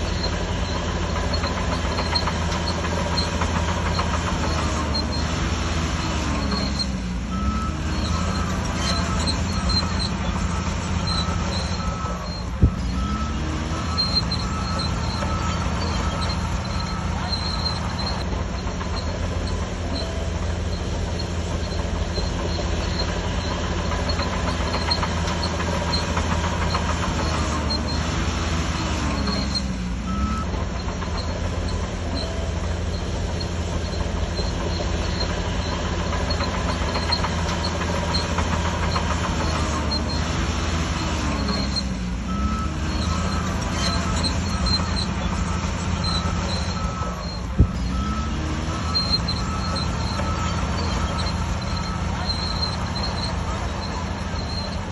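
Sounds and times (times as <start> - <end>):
bulldozer diesel engine running: 0.0 - 54.9
steel tracks squealing: 0.0 - 54.9
short repeated beeps: 6.0 - 18.2, 41.0 - 54.9.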